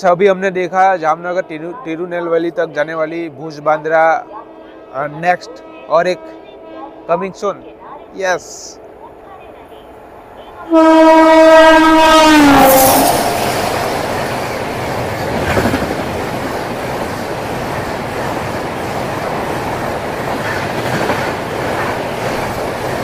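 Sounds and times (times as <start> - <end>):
train passing with wheel clatter: 0.0 - 23.0
train horn: 10.4 - 14.7.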